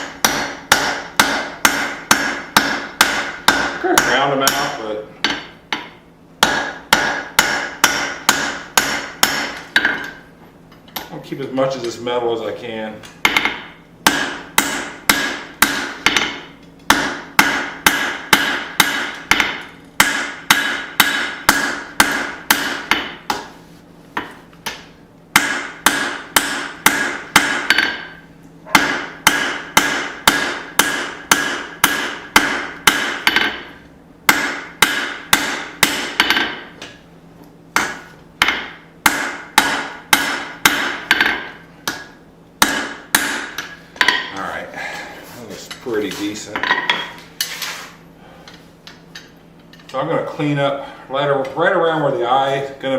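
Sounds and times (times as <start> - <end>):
hammer striking steel on anvil: 0.0 - 10.2, 13.2 - 23.4, 24.6 - 33.7, 34.3 - 36.7, 37.8 - 44.4.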